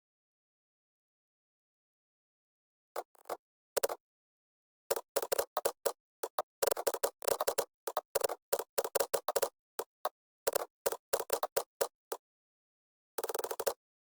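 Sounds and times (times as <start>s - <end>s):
computer keyboard typing: 4.9s - 12.2s, 13.2s - 13.8s.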